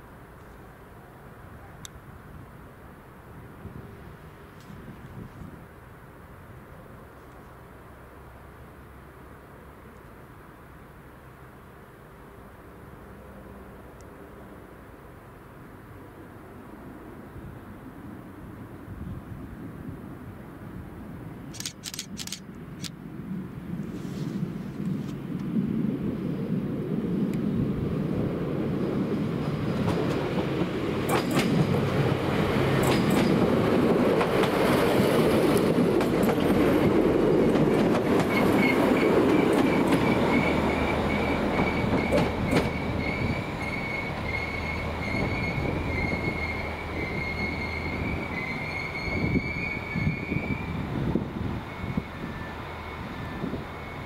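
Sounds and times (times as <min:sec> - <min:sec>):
train wheels clicking over rail joints: 0:21.6 - 0:22.9, 0:29.8 - 0:46.5
rush of train wheel noise: 0:21.6 - 0:54.0
high brake squeal: 0:38.3 - 0:50.8, 0:51.6 - 0:54.0.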